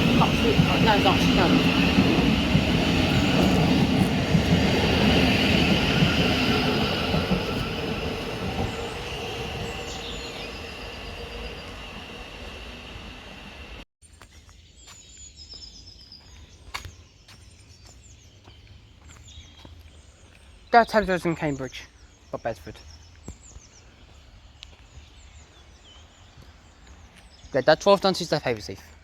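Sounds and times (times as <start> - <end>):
train whining on track: 0.0 - 13.9.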